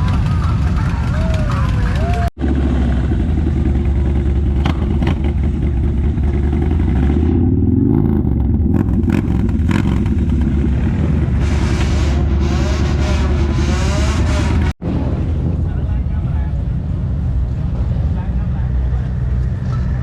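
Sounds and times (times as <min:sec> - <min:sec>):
vehicle engine running: 0:00.0 - 0:20.0
engine revving: 0:02.1 - 0:15.3.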